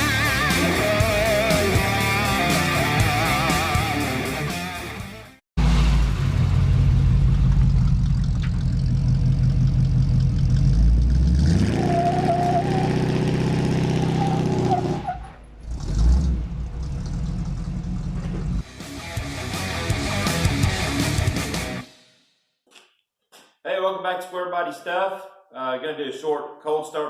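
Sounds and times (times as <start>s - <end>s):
truck engine revving: 0.0s - 21.8s
engine whine: 5.6s - 21.9s.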